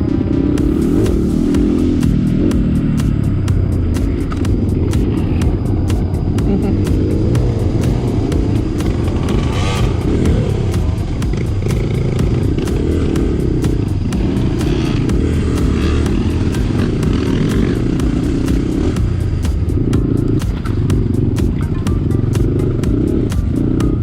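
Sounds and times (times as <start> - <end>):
dirt bike engine running: 0.0 - 24.0.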